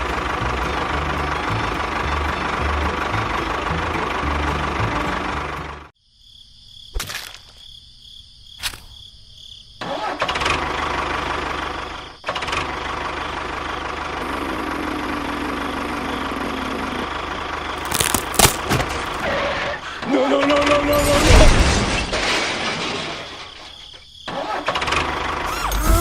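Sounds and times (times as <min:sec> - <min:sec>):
small motor running: 0:25.5 - 0:26.0.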